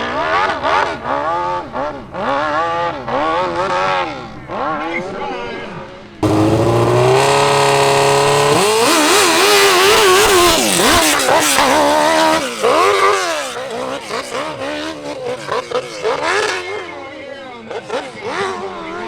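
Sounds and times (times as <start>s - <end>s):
motorcycle engine at full throttle: 6.2s - 16.8s.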